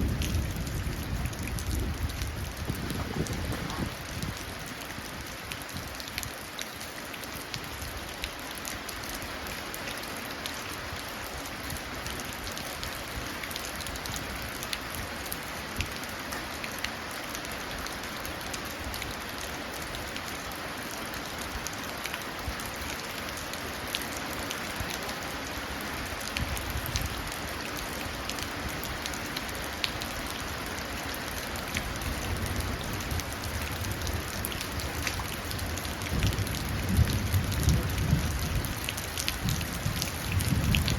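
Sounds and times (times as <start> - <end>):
steady rain into puddles: 0.0 - 40.9
distant thunder rumble: 0.1 - 4.4.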